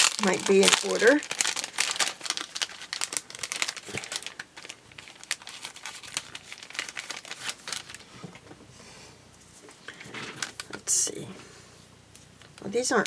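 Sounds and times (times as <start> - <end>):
plastic packaging crinkling: 0.0 - 8.6, 9.9 - 10.9.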